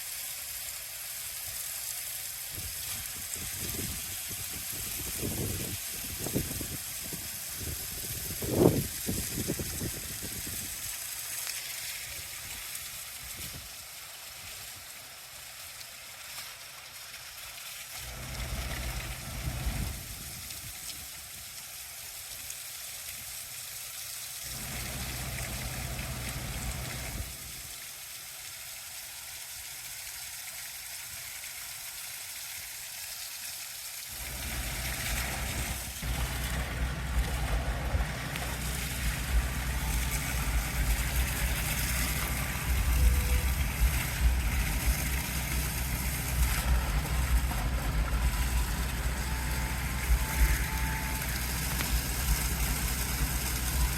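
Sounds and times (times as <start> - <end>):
high-pressure water spray hissing: 0.0 - 53.9
truck engine running: 18.0 - 20.2, 24.5 - 27.4, 34.2 - 53.9.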